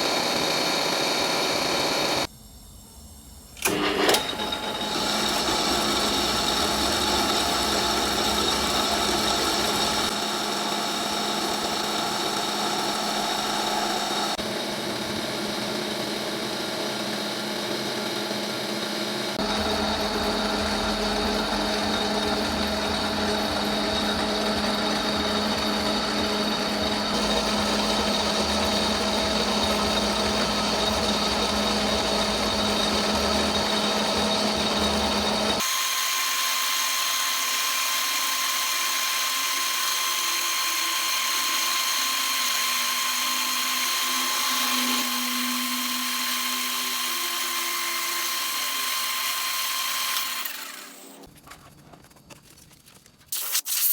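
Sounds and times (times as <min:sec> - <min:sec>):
metal lathe motor whine: 0:00.0 - 0:02.3, 0:03.6 - 0:51.2.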